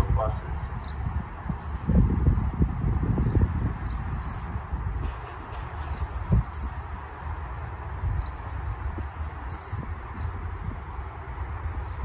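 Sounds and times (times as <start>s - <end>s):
bird short sharp high call: 4.2s - 4.6s
faint bird chirps: 9.5s - 9.9s.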